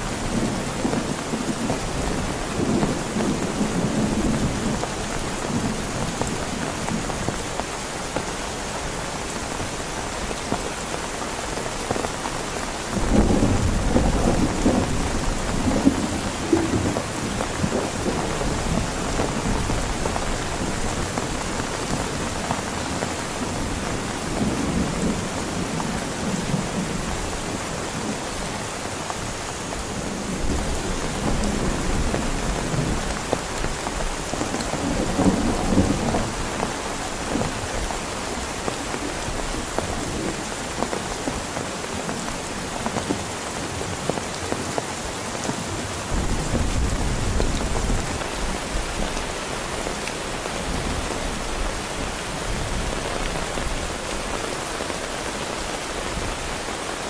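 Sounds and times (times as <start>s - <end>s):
heavy rain falling: 0.0s - 57.0s
thunder rumbling: 12.9s - 28.1s, 29.8s - 40.8s, 46.0s - 49.2s.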